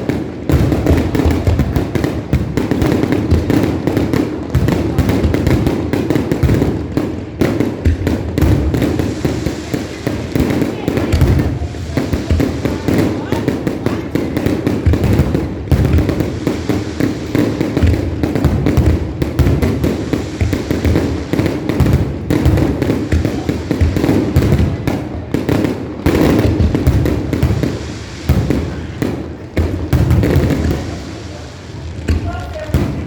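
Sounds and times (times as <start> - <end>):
fireworks booming and crackling: 0.0 - 33.0.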